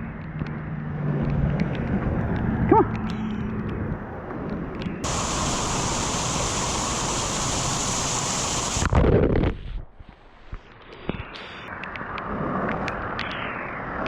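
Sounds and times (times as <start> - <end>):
floodwater rushing in a creek: 5.0 - 9.0
low blast: 5.0 - 9.1.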